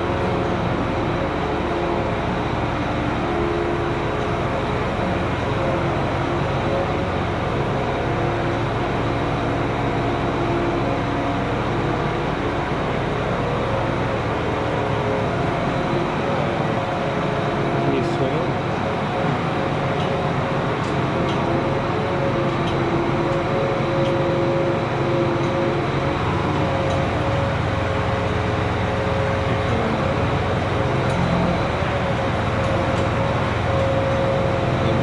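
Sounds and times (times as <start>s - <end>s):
tractor engine running: 8.5s - 35.0s.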